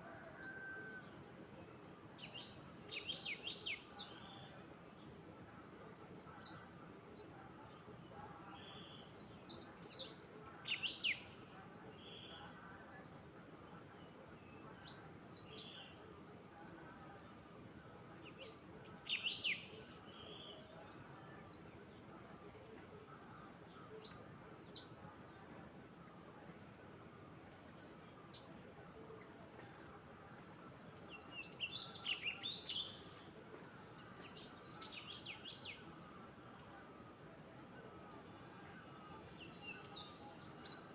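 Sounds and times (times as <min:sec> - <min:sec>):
songbird twittering: 0:00.0 - 0:07.7, 0:17.5 - 0:22.4, 0:23.0 - 0:25.2, 0:27.3 - 0:40.9
faint background hiss: 0:00.0 - 0:40.9.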